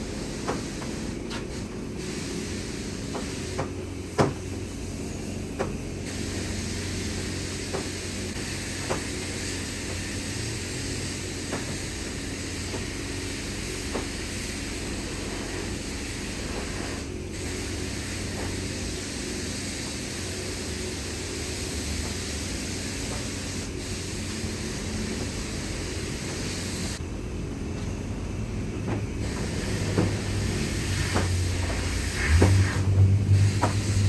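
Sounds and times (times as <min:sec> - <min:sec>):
vehicle engine running: 0:20.2 - 0:34.0.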